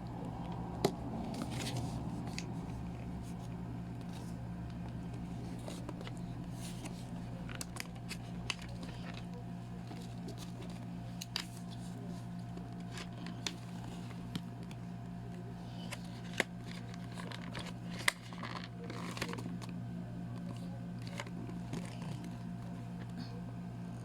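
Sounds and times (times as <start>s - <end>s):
steady low hum: 0.0s - 24.0s
packaging rustle: 15.8s - 19.7s.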